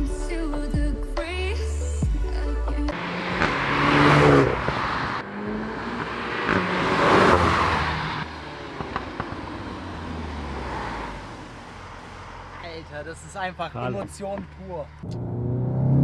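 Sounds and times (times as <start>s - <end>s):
car accelerating past: 2.9s - 12.7s, 15.0s - 16.0s.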